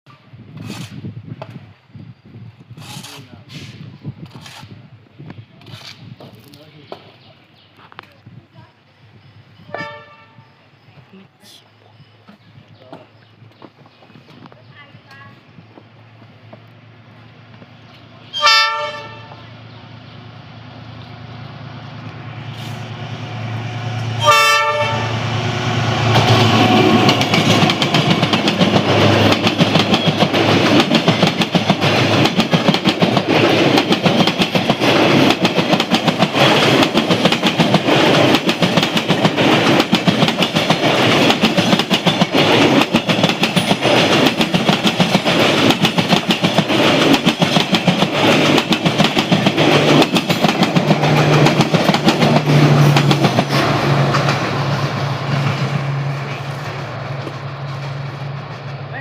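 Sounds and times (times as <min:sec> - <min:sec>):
locomotive horn blast: 0:09.7 - 0:10.5, 0:18.3 - 0:19.5, 0:24.1 - 0:27.0
train wheels clattering over rails: 0:24.2 - 0:58.8.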